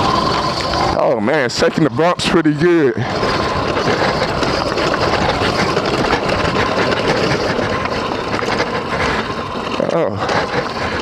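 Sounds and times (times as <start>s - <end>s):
bike rattling over bumps: 0.0s - 11.0s
dirt bike engine running: 0.0s - 11.0s.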